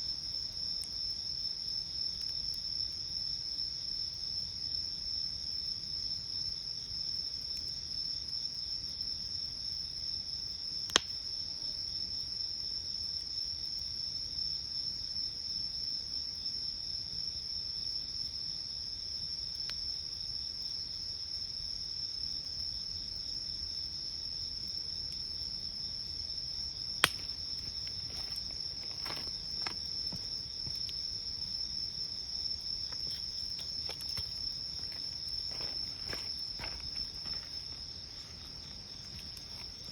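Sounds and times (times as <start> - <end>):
faint fire crackles: 0.0 - 39.9
night insects chirring: 0.0 - 39.9
campfire wood popping: 10.9 - 11.2, 26.4 - 39.9.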